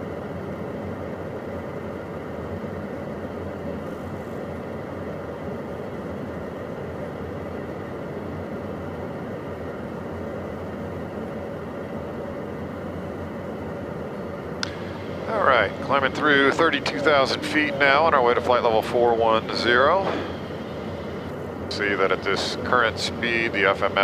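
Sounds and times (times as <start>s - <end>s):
jet cockpit airflow: 0.0s - 24.0s
jet engine drone: 0.0s - 24.0s.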